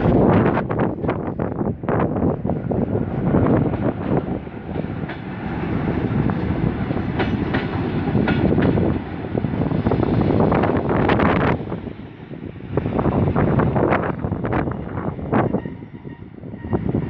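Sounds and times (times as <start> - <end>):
train rumbling past: 0.0 - 17.0
wheels clacking over rail joints: 3.2 - 9.5.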